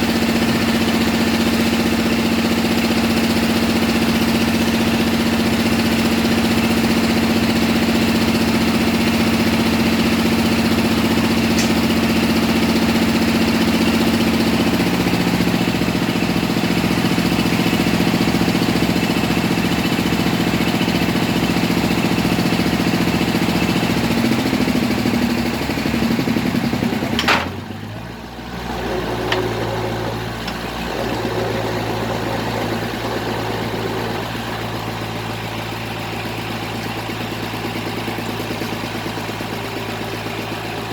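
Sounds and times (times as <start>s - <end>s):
drilling rig engine running: 0.0s - 40.9s
sharp click: 11.5s - 12.0s.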